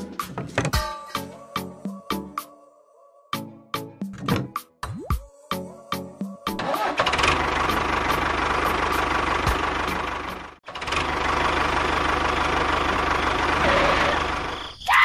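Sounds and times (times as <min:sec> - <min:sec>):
engine idling with knocking beat: 0:06.6 - 0:14.5.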